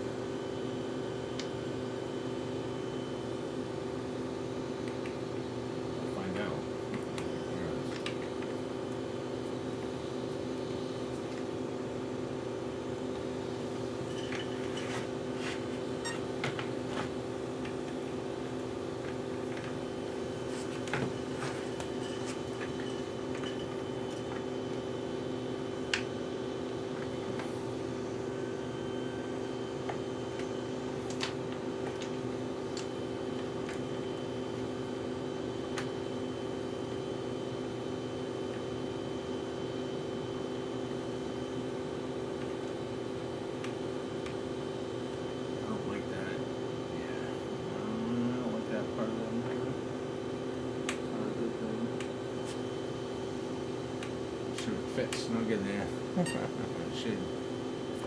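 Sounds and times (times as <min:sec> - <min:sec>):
steady hum: 0:00.0 - 0:58.0.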